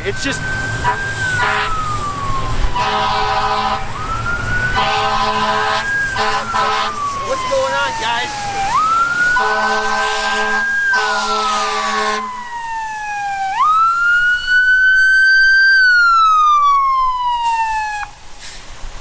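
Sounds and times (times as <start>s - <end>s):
fire truck siren wailing: 0.0s - 18.3s
horn blasts: 0.8s - 1.8s, 2.8s - 3.9s, 4.7s - 7.0s, 9.4s - 12.4s.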